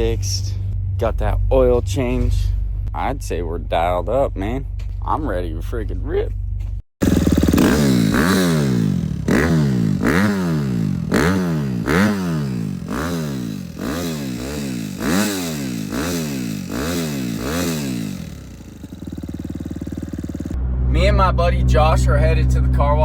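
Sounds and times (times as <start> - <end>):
motocross engine revving: 7.0 - 23.0.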